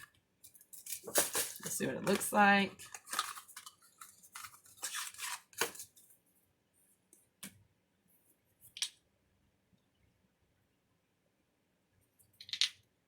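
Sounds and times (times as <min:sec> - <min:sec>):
packaging rustling: 0:00.6 - 0:06.1
packaging clicks: 0:02.8 - 0:05.9.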